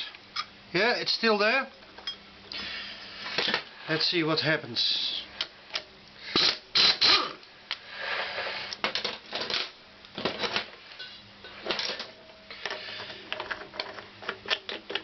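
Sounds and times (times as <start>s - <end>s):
metal parts scraping and rattling: 8.1s - 15.0s.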